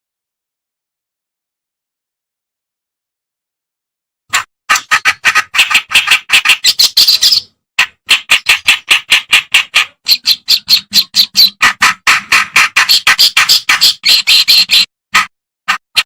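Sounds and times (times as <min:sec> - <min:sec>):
warbler singing harsh chattering notes: 0:04.7 - 0:11.9, 0:12.5 - 0:14.9.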